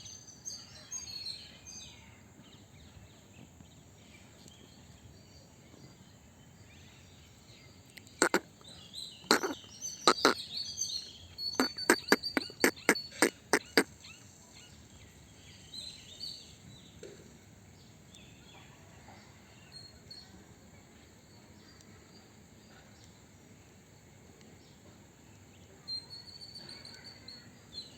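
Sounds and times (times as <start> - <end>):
short high chirps: 11.6 - 13.8.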